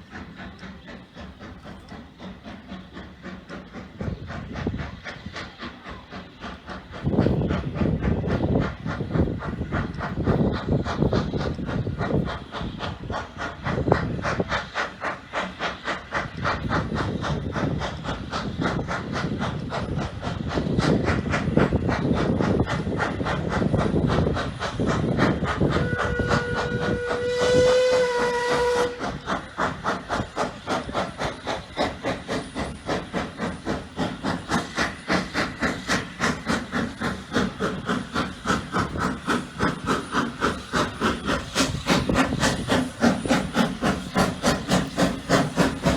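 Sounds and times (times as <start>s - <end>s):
steam hiss: 0.0s - 45.9s
steam locomotive chuffing: 0.0s - 45.9s
steam whistle: 25.6s - 29.2s.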